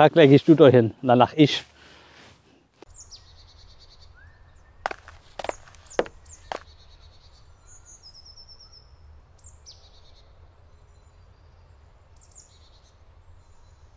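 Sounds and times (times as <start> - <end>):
falling bird calls: 2.9 - 8.3.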